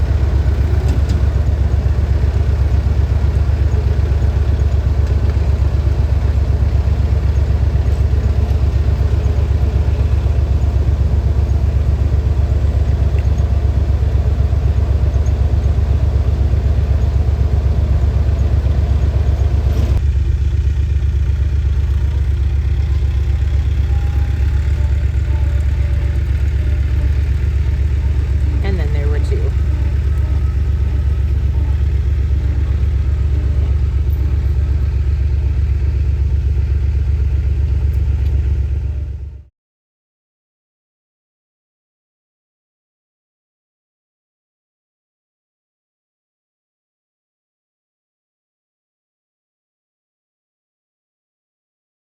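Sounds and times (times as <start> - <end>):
diesel tractor engine running: 0.0 - 39.5.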